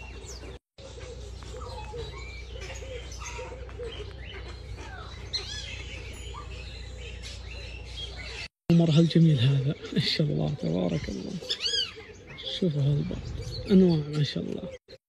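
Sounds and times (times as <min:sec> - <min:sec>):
birds chirping and warbling: 0:00.0 - 0:15.0
low background hum: 0:00.1 - 0:08.5.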